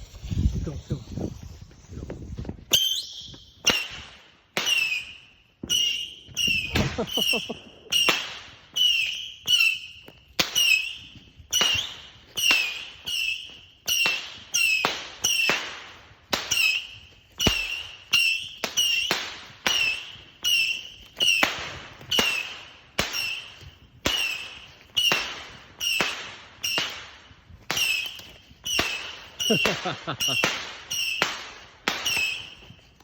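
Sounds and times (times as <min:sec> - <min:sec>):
firework cake shots popping: 0:10.4 - 0:32.8.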